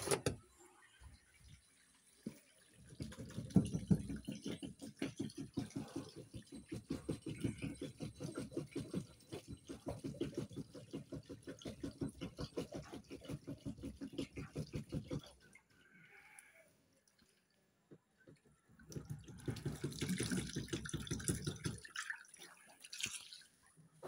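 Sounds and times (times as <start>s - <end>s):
brush scrubbing: 2.2s - 15.6s.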